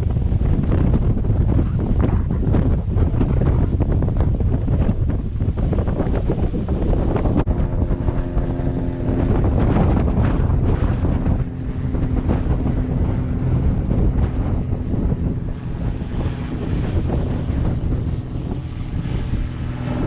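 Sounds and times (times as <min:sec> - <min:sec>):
choppy surf: 0:00.0 - 0:20.0
steady low tone: 0:00.0 - 0:20.0
wind buffeting microphone: 0:00.0 - 0:20.0.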